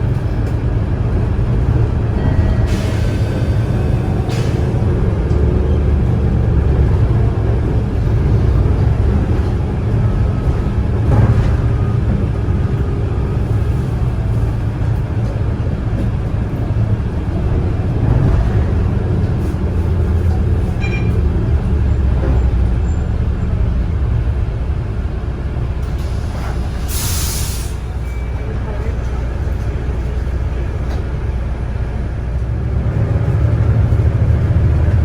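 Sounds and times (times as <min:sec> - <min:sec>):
bus drivetrain rumble: 0:00.0 - 0:35.0
air hiss: 0:26.4 - 0:27.9.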